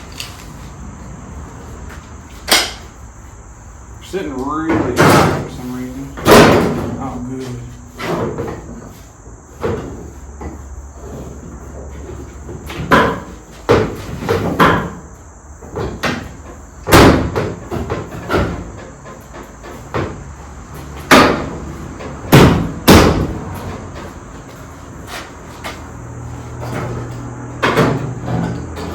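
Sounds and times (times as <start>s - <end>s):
sheet metal panels knocking: 6.2s - 9.0s.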